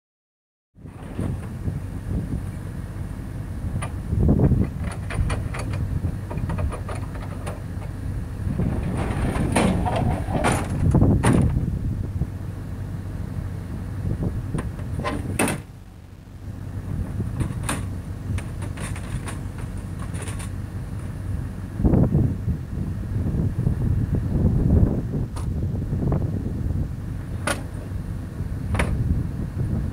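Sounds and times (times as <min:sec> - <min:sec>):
low rumble: 0:07.4 - 0:29.9
metal ramp scraping: 0:08.4 - 0:11.6
metal ramp knocks and clanks: 0:08.5 - 0:11.6, 0:14.6 - 0:15.7, 0:17.3 - 0:20.5.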